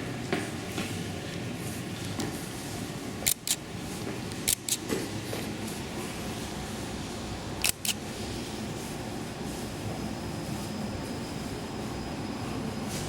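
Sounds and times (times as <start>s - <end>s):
steady background hum: 0.0s - 13.0s
sharp clicks in pairs: 3.3s - 3.6s, 4.5s - 4.8s, 7.6s - 8.0s.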